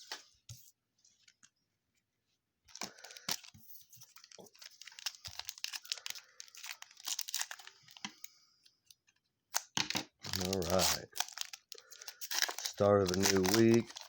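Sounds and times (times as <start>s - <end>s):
foil wrapper tearing and crinkling: 2.7s - 3.5s, 4.1s - 8.1s, 9.5s - 14.0s.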